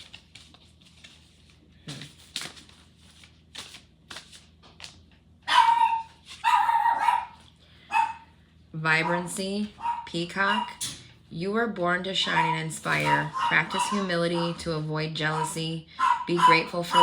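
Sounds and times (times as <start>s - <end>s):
cards rustling and tapping: 0.0s - 5.3s
dog barking: 5.5s - 8.3s, 9.0s - 10.8s, 12.2s - 14.7s, 15.3s - 17.0s.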